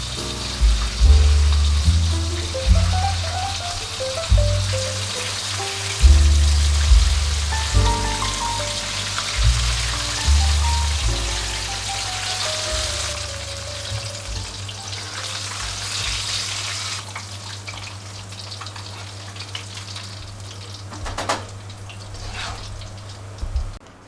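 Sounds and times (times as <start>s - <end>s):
soft background music: 0.0s - 16.4s
food deep-frying in oil: 0.0s - 23.8s.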